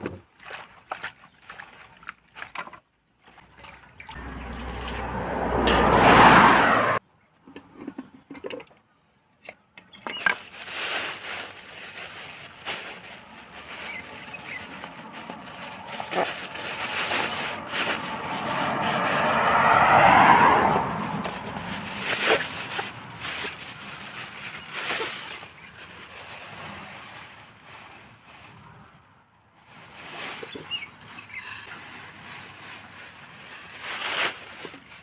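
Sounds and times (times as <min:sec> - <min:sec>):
steady outdoor noise: 0:02.4 - 0:35.0
vehicle passing on road: 0:04.0 - 0:07.0, 0:11.3 - 0:29.4
vehicle approaching loudly: 0:04.2 - 0:07.0, 0:13.0 - 0:25.3.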